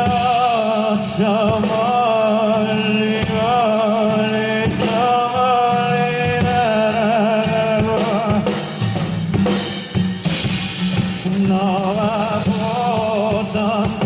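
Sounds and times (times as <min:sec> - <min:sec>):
person singing long notes: 0:00.0 - 0:08.6
band accompaniment: 0:00.0 - 0:14.0.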